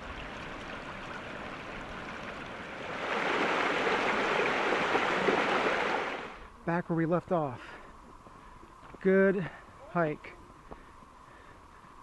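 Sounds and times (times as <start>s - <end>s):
running water: 0.0s - 6.5s.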